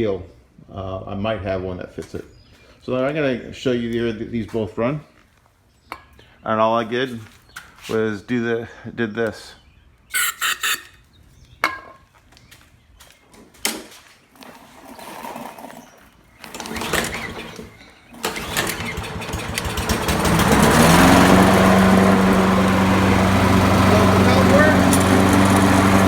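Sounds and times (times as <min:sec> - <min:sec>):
lawn mower engine starting: 0:14.7 - 0:26.0.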